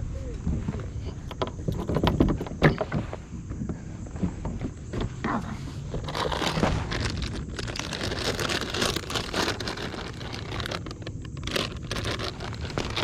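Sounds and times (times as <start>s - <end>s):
footsteps crunching on brush and gravel: 5.8s - 10.9s.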